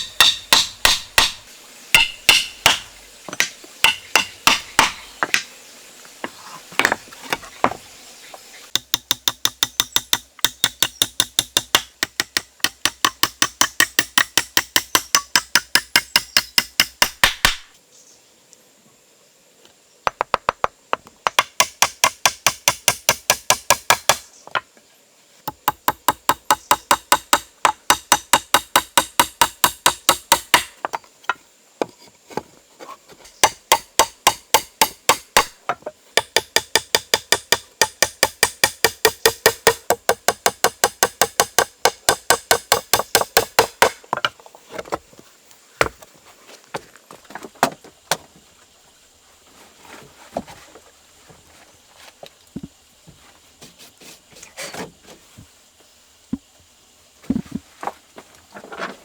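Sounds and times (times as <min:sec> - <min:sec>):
rapid hammering strikes: 0:00.0 - 0:01.4, 0:02.0 - 0:02.9, 0:03.8 - 0:05.0, 0:33.4 - 0:35.5, 0:36.2 - 0:44.0.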